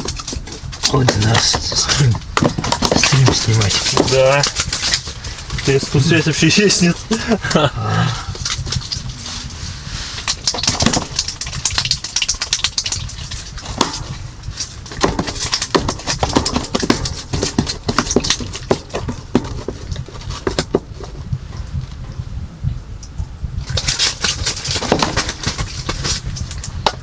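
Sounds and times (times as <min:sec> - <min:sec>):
low rumble: 0:00.0 - 0:17.3, 0:18.9 - 0:27.0
sharp clicks and crunches: 0:00.0 - 0:22.0, 0:23.0 - 0:27.0.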